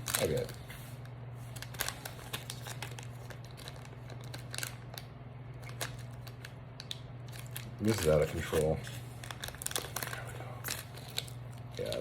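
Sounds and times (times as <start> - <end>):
plastic package crinkling: 0.0 - 12.0.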